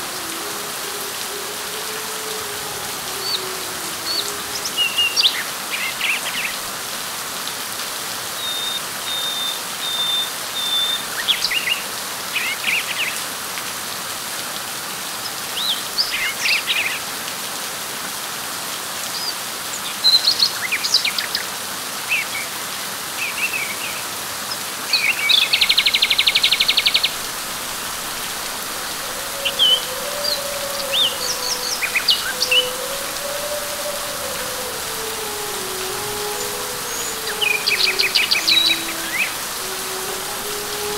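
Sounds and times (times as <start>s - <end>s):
birds chirping: 0.0s - 6.6s, 25.5s - 40.9s
light rain on leaves: 0.0s - 40.9s.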